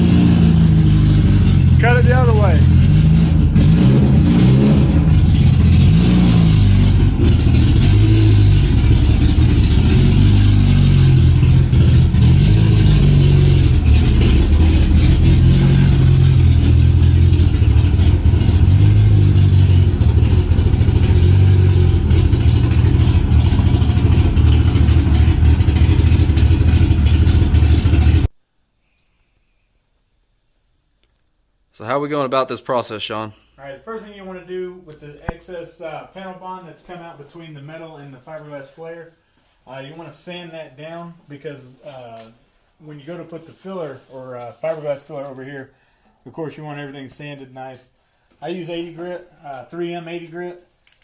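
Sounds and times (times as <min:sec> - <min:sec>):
car engine revving: 0:00.0 - 0:28.3.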